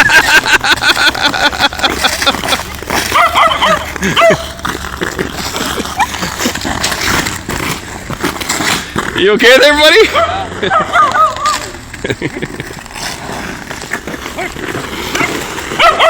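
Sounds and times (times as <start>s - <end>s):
ice skate blades scraping ice: 0.0s - 16.0s
dog yipping: 3.1s - 4.5s, 10.2s - 11.6s, 15.8s - 16.0s.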